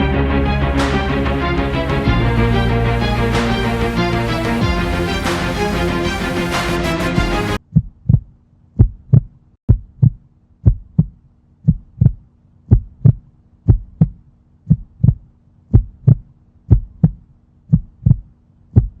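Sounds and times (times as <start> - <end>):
heartbeat thumps: 7.6 - 19.0.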